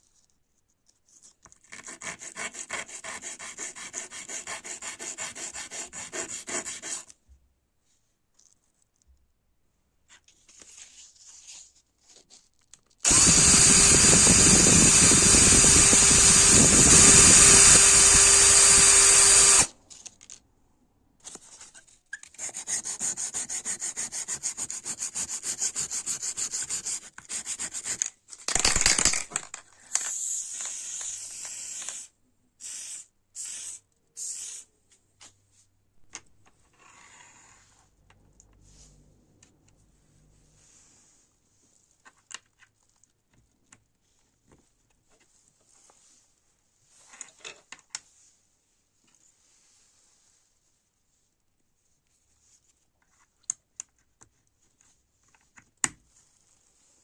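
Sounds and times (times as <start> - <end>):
small power tool running: 13.0 - 19.7.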